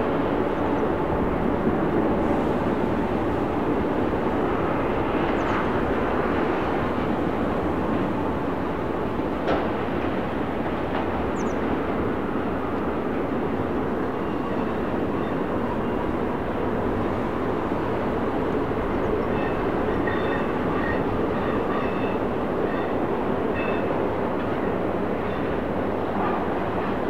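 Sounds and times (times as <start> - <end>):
freight train wheels clattering: 18.8 - 27.0.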